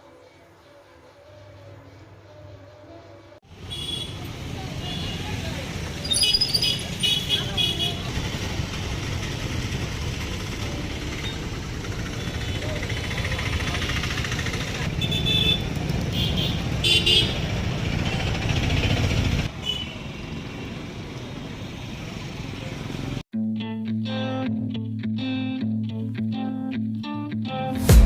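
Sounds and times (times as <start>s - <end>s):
vehicle engine rumble: 3.6s - 23.2s.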